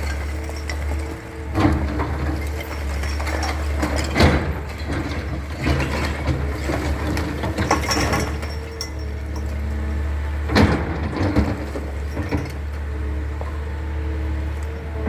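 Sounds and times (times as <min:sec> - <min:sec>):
metallic clanks and rattles: 0:00.0 - 0:09.6
excavator diesel engine running: 0:00.0 - 0:15.0.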